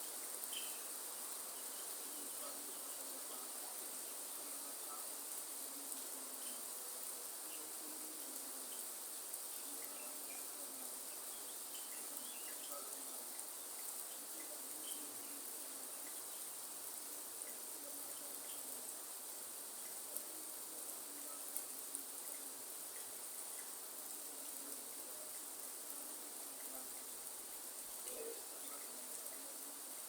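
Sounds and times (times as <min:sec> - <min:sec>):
rain falling: 0:00.0 - 0:30.0
dripping water ticks: 0:11.4 - 0:15.0, 0:15.9 - 0:20.3, 0:21.4 - 0:29.4.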